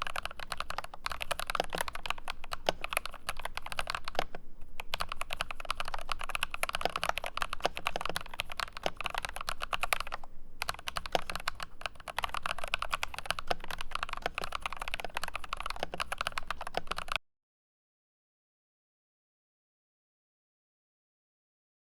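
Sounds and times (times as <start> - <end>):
mechanical keyboard typing: 0.0 - 17.2.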